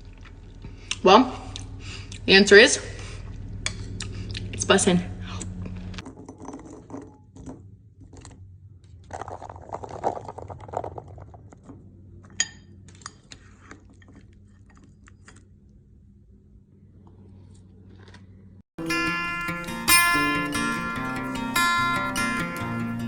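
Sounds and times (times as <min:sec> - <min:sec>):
crunchy chewing: 0:00.0 - 0:02.3, 0:03.0 - 0:04.6, 0:08.1 - 0:16.0, 0:16.9 - 0:18.6.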